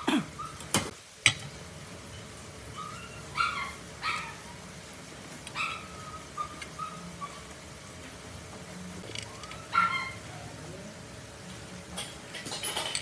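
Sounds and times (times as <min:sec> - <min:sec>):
dog yipping and whimpering: 0:00.4 - 0:00.7, 0:02.7 - 0:04.6, 0:05.5 - 0:07.5, 0:09.3 - 0:10.5.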